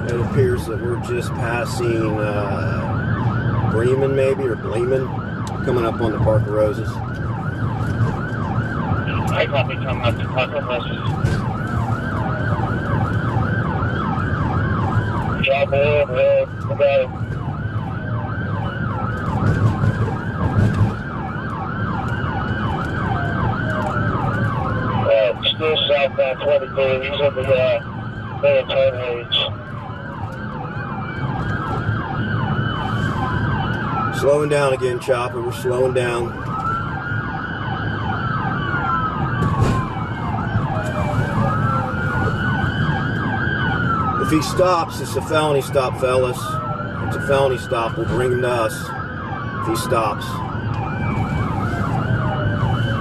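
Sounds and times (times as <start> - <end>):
engine and road rumble: 0.0 - 53.0
police siren yelp: 0.0 - 53.0
siren tone gliding downward: 46.4 - 53.0.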